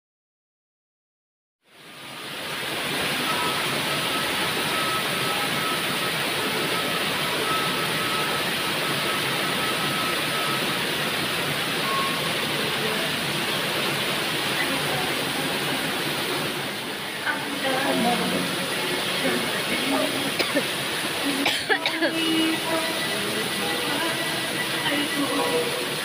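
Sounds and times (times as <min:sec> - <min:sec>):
heavy rain falling: 0:01.7 - 0:26.0.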